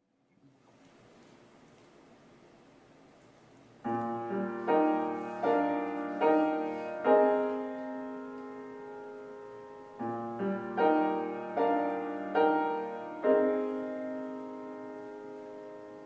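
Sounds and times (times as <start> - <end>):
slow piano chords: 3.8 - 16.0.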